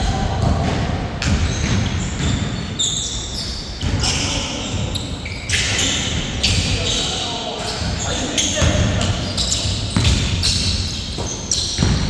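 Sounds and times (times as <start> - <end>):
basketball bouncing: 0.0 - 2.7, 8.6 - 12.0
shoe squeaks: 1.4 - 12.0.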